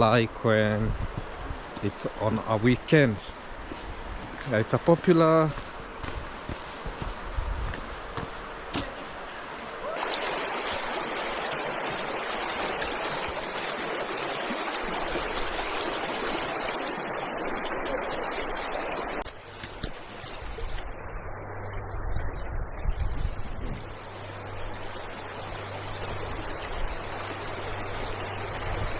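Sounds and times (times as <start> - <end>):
water flowing with low rumble: 0.0 - 28.9
river water rushing over stones: 9.1 - 20.9.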